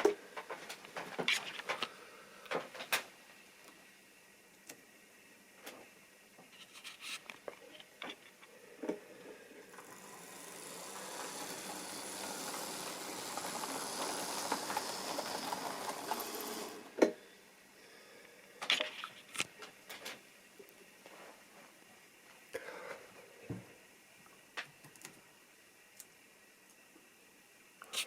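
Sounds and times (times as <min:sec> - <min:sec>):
model train whirring on track: 0:09.6 - 0:17.1.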